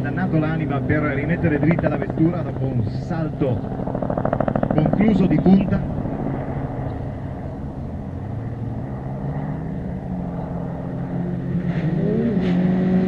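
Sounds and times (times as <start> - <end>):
rally car engine revving: 7.2 - 13.0.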